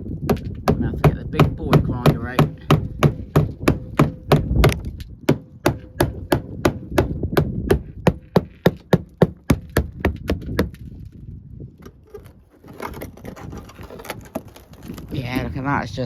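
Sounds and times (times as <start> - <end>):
hand tool knocking body filler: 0.2 - 10.8.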